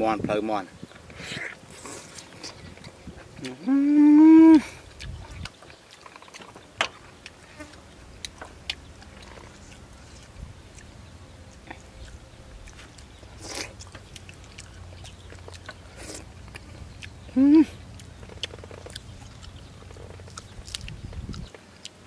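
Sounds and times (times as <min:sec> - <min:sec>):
chewing clicks and smacks: 0:04.5 - 0:22.0
faint low rumble: 0:07.0 - 0:21.6.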